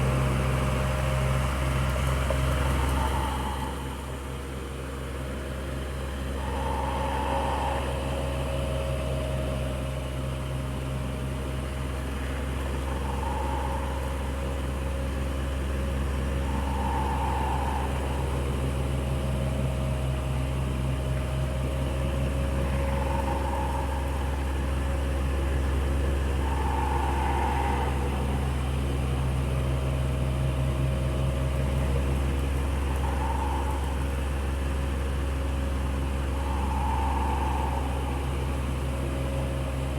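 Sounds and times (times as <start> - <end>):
electric fan humming and whirring: 0.0 - 39.9
faint higher-pitched sound: 6.1 - 10.0, 12.3 - 20.2, 21.7 - 30.3, 31.2 - 39.8.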